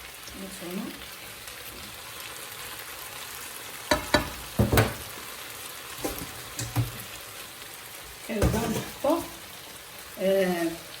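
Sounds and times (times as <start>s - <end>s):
food sizzling in a pan: 0.0s - 11.0s
utensil knocking against pan: 3.9s - 5.0s, 6.0s - 7.0s.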